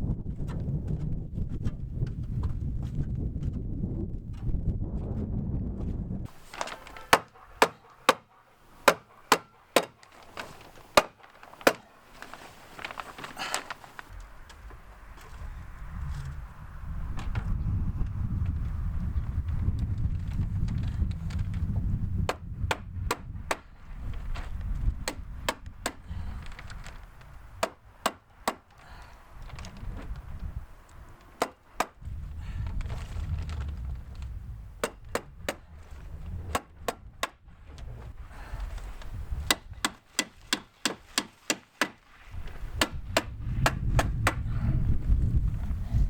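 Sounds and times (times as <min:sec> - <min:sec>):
wind rumble on microphone: 0:00.0 - 0:06.4, 0:12.8 - 0:40.6, 0:42.2 - 0:46.0
stapler strikes: 0:06.6 - 0:10.2, 0:11.0 - 0:11.9, 0:22.3 - 0:23.7, 0:25.0 - 0:26.0, 0:27.6 - 0:28.8, 0:31.4 - 0:32.0, 0:34.8 - 0:35.6, 0:39.5 - 0:42.0.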